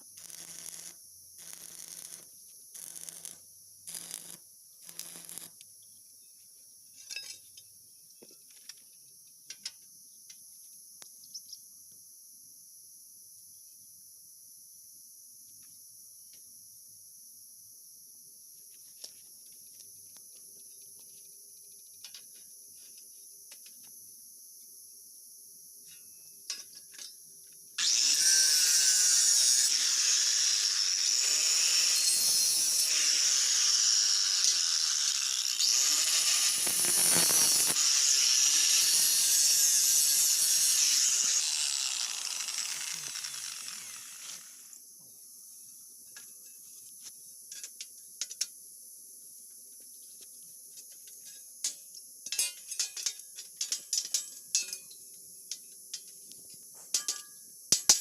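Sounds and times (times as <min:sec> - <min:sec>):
metal tool hissing on steel: 0:29.6 - 0:44.6.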